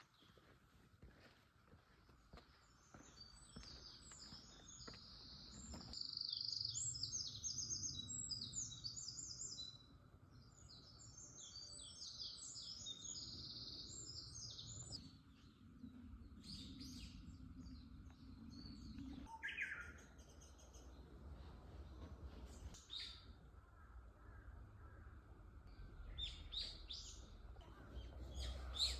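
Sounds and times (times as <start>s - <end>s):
footsteps on dirt path: 0.0s - 6.0s
songbirds trilling and chirping: 0.0s - 28.9s.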